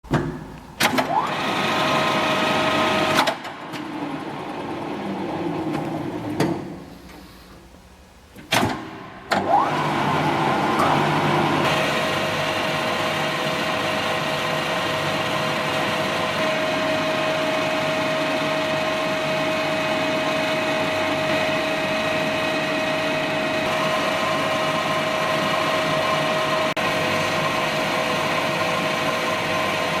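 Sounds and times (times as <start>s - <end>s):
sharp clunks: 0.0s - 1.1s
lathe motor whining: 9.4s - 30.0s.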